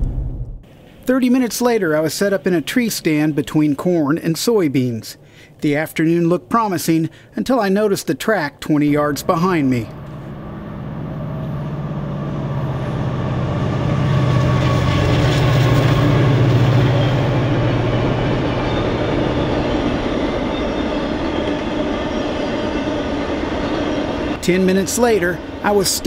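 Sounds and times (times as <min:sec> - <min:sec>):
freight train rumbling past: 0:00.0 - 0:05.3, 0:06.0 - 0:26.0
steady low hum: 0:08.4 - 0:26.0.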